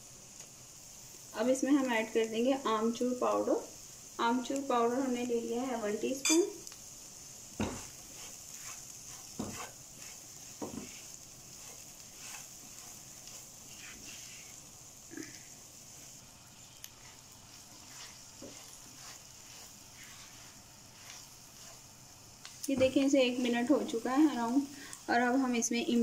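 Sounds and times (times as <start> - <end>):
chillies sizzling in oil: 0.0 - 26.0
spatula stirring and scraping: 7.4 - 24.5.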